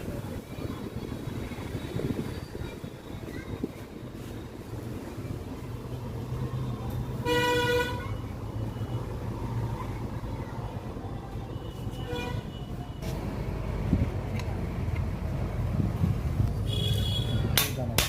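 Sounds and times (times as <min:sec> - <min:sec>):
vehicle horn honking: 0:07.2 - 0:08.2, 0:11.7 - 0:12.7, 0:16.7 - 0:17.5.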